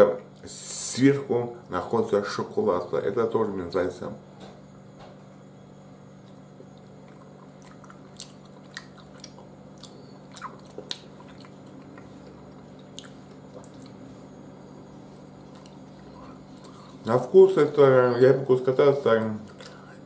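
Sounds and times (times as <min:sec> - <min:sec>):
person chewing sticky sweet: 0:06.1 - 0:17.8, 0:19.4 - 0:20.0
wet mouth clicks and smacks: 0:06.2 - 0:14.0.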